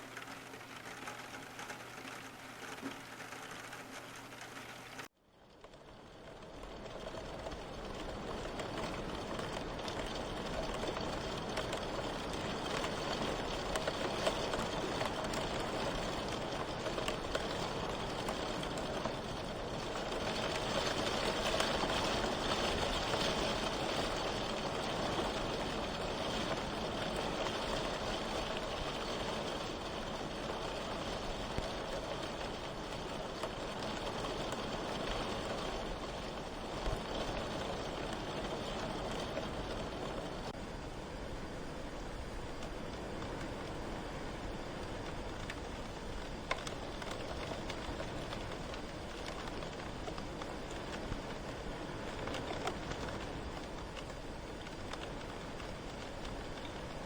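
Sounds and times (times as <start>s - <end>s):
mechanical hum: 0.0s - 5.1s
rain hissing on a car: 0.0s - 57.0s.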